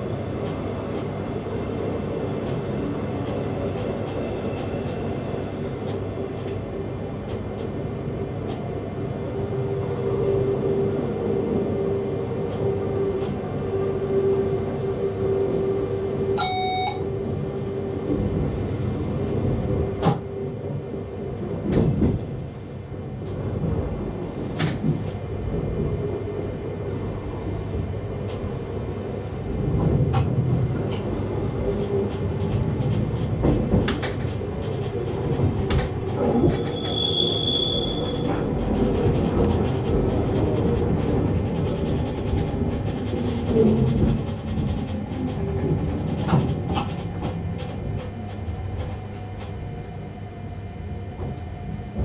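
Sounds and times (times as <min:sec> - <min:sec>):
electric train running hum: 0:00.0 - 0:52.0
short high beep: 0:16.4 - 0:17.0.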